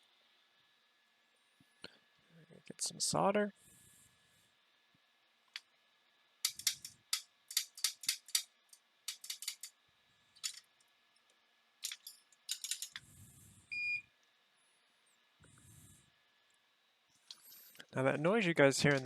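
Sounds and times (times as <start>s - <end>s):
soldering tools clicking: 6.4s - 9.8s, 10.4s - 13.0s
extractor fan humming: 14.6s - 19.0s.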